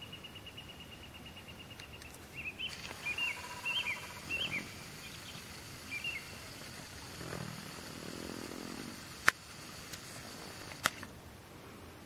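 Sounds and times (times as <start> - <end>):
songbird singing whistled phrases: 0.0 - 6.4
faint background hiss: 0.0 - 12.0.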